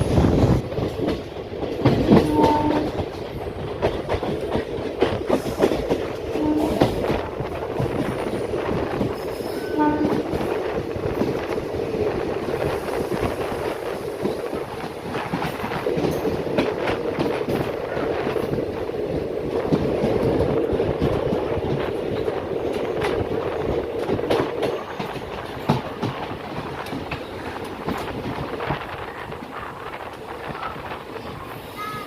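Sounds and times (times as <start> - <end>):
train rumbling at speed: 0.0 - 32.0.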